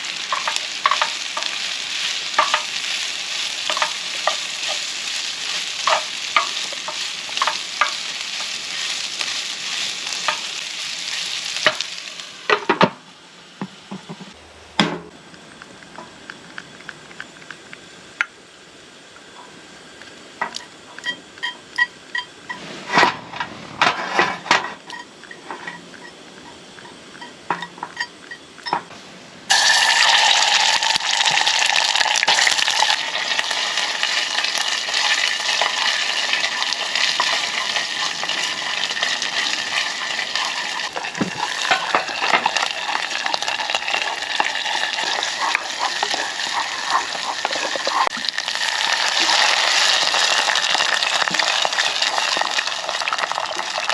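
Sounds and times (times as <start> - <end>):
food sizzling in a hot pan: 0.0 - 12.7, 29.5 - 53.9.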